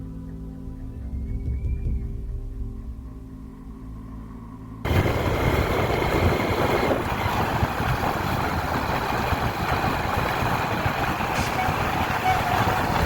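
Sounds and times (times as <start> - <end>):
vehicle engine running: 4.8 - 13.0.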